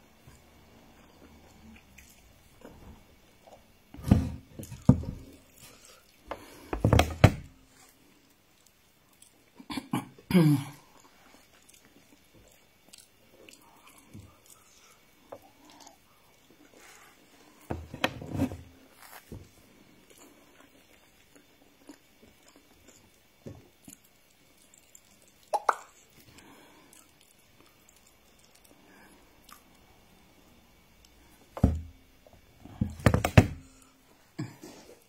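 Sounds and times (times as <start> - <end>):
wet chewing and lip-smacking: 11.3 - 16.8, 20.1 - 28.8.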